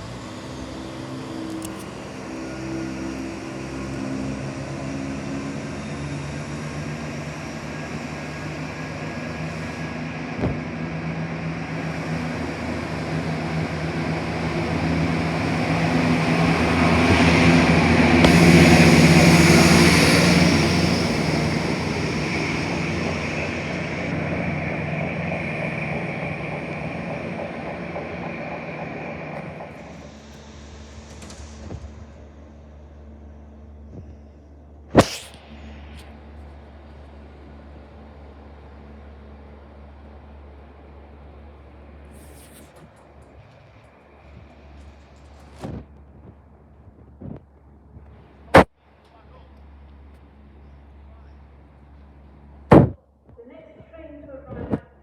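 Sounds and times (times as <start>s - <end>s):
diesel train passing: 0.0s - 52.7s
sharp click: 1.5s - 1.9s, 35.0s - 36.1s.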